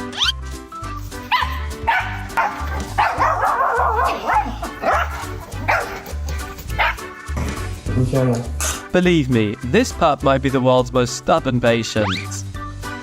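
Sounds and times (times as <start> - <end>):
background music with steady beat: 0.0 - 11.7
dog barking: 1.3 - 7.1.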